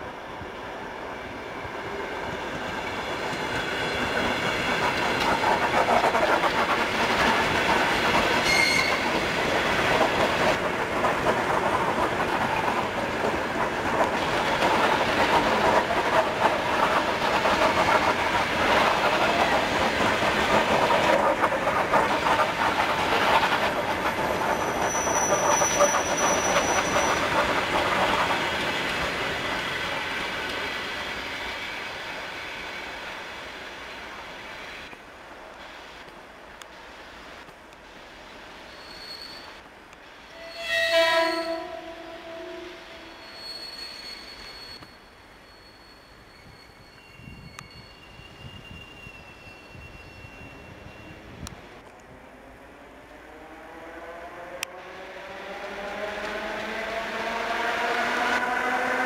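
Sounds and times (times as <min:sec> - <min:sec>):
train wheels clattering over joints: 0:03.2 - 0:29.2
high wheel squeal: 0:08.3 - 0:09.2, 0:20.5 - 0:28.6, 0:38.6 - 0:39.6, 0:40.3 - 0:51.4.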